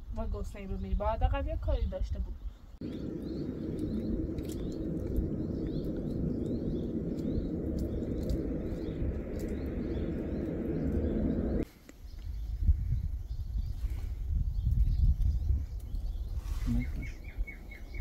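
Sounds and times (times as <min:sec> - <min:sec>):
small birds chirping: 0:00.4 - 0:18.0
low rushing noise: 0:02.8 - 0:11.6.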